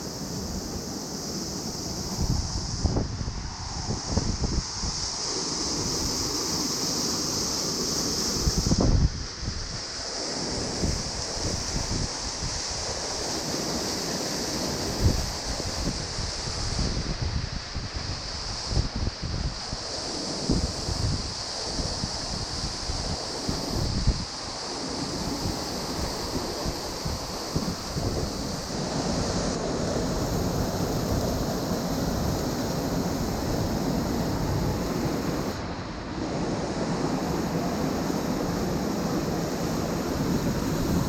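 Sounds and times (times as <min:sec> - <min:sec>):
wind buffeting microphone: 0:01.8 - 0:05.0, 0:25.0 - 0:41.0.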